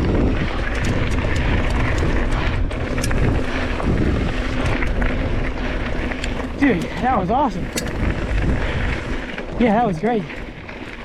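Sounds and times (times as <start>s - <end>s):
wind buffeting microphone: 0.0s - 9.9s
bike clicks and rattles: 4.4s - 11.0s.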